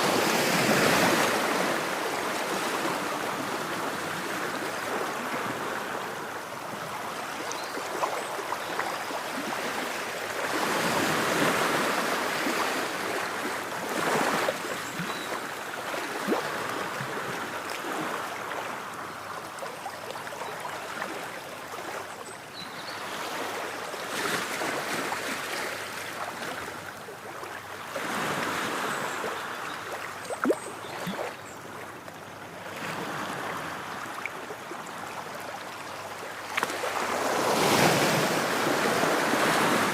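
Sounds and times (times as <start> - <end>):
ocean waves washing ashore: 0.0 - 19.0, 32.7 - 39.9.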